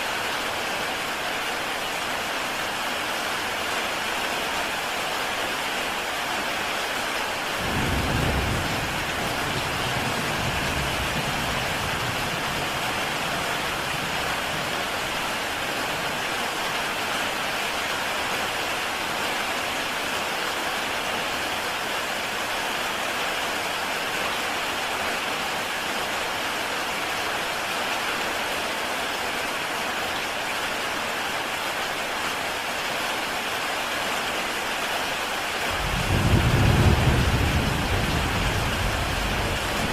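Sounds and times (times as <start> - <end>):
heavy rain on a tile roof: 0.0 - 39.9.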